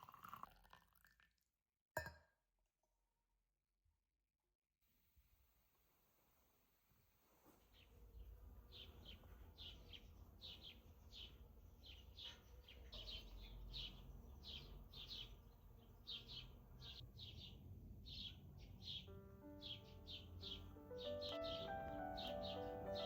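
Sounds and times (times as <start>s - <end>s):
bird chirping: 8.7s - 23.0s
faint low rumble: 17.0s - 19.5s.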